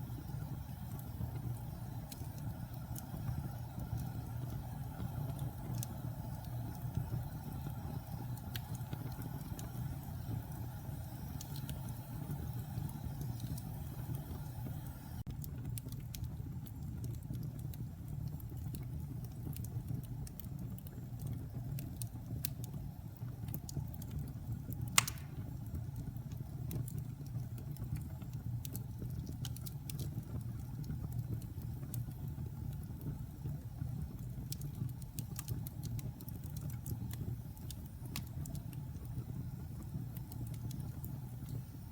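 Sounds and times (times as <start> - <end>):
fire crackling: 0.0 - 41.9
rumble of fire flames: 0.0 - 41.9
sharp pop from logs: 25.0 - 25.4.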